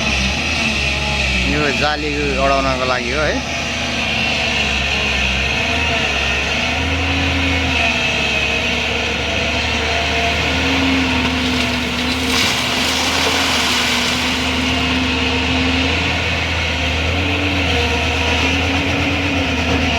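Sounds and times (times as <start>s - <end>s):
excavator diesel engine running: 0.0s - 19.9s
rush of rough noise: 10.6s - 18.3s.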